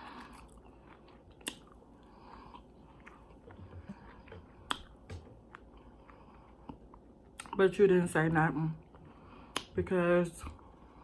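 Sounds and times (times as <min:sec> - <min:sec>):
chewing food: 0:00.0 - 0:08.0.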